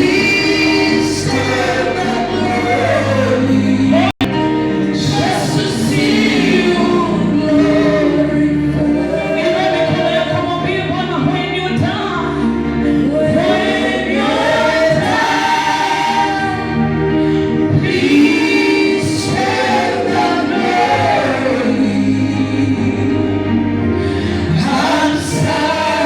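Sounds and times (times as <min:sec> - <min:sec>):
gospel choir singing: 0:00.0 - 0:26.0
musical accompaniment: 0:00.0 - 0:26.0.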